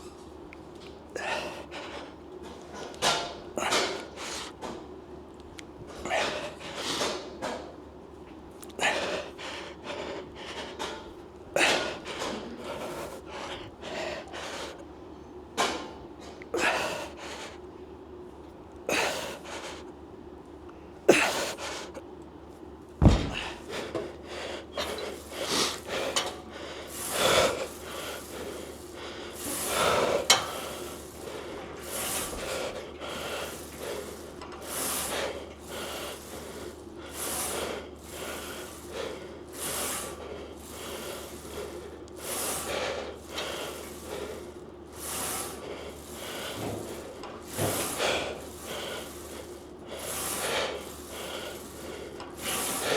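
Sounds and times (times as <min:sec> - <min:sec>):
sharp knocks: 0:23.0 - 0:23.6.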